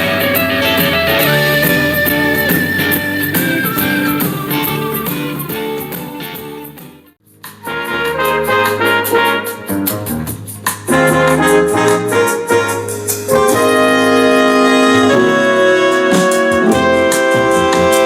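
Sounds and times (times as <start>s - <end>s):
jazz music with trumpet and piano: 0.0s - 4.8s, 7.6s - 18.0s
long held horn notes: 0.0s - 6.0s, 10.9s - 18.0s.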